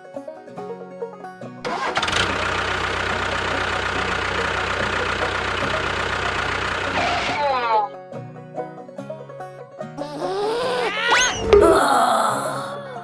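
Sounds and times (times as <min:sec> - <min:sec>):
engine running with low pulse: 0:01.7 - 0:07.6.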